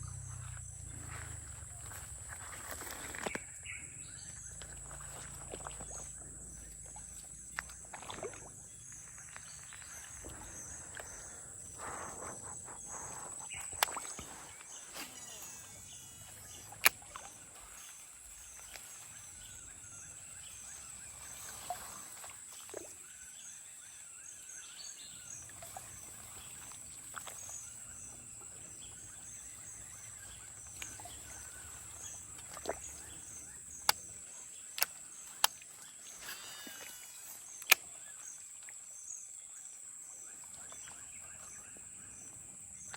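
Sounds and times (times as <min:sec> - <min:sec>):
sharp clicks: 0:37.5 - 0:37.9.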